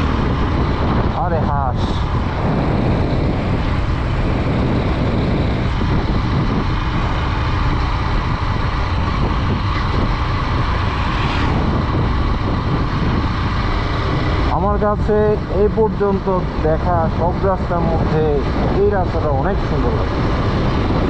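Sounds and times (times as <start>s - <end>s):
motorcycle engine running: 0.0s - 21.0s
wind rush on microphone: 0.0s - 21.0s.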